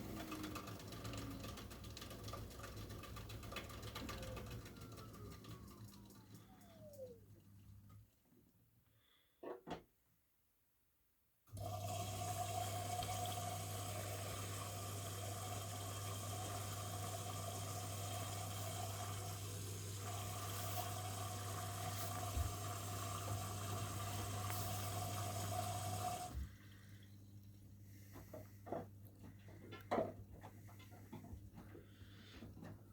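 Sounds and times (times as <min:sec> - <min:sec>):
water rushing into washing machine: 0:00.0 - 0:07.3, 0:11.5 - 0:26.8
electrical hum: 0:03.6 - 0:07.7, 0:11.6 - 0:32.7.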